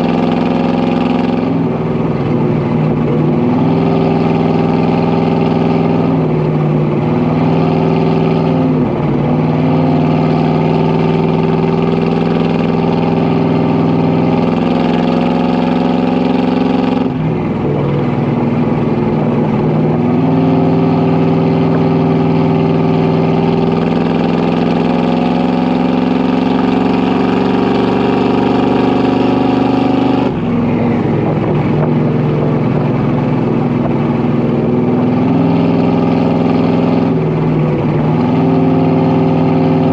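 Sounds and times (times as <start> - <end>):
car exhaust deep note: 14.6 - 39.9.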